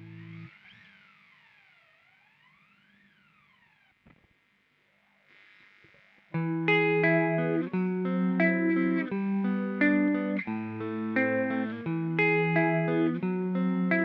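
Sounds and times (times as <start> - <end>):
electric guitar notes and chords: 0.0 - 0.6, 6.3 - 14.0.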